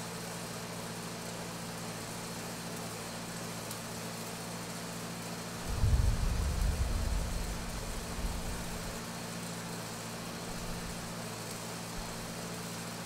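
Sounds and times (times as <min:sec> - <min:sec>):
low electrical hum: 0:05.4 - 0:09.4
steady hiss: 0:05.5 - 0:11.1
low rumble: 0:05.6 - 0:09.0.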